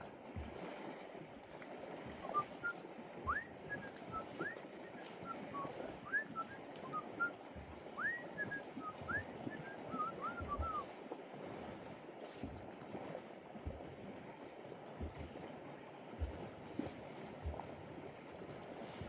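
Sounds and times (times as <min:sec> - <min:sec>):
clear whistled notes: 0:02.2 - 0:07.4, 0:08.0 - 0:10.9.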